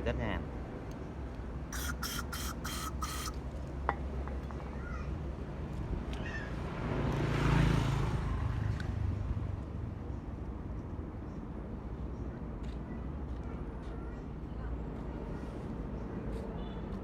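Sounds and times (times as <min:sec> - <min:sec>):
aerosol spray hissing: 0:01.8 - 0:03.4.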